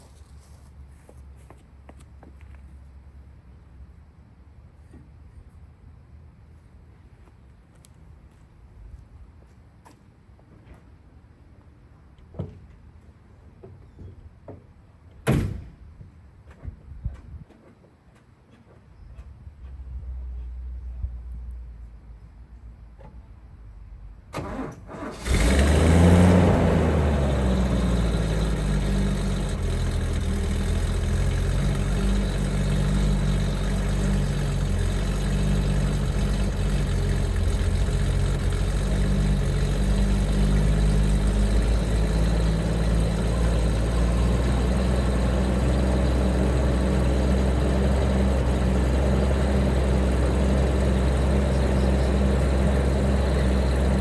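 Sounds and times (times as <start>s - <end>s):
car engine starting and idling: 24.3s - 54.0s.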